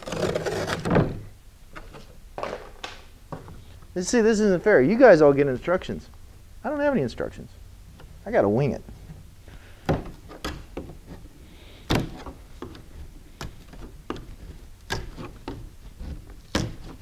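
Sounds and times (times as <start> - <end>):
board cracking and breaking: 0.0 - 1.3.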